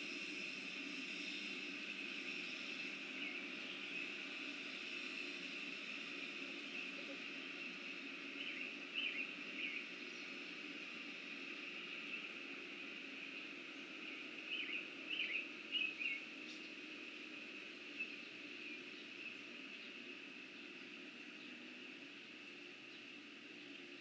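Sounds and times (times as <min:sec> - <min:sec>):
steady high-pitched drone: 0:00.0 - 0:24.0
small bird chirping: 0:14.0 - 0:16.8.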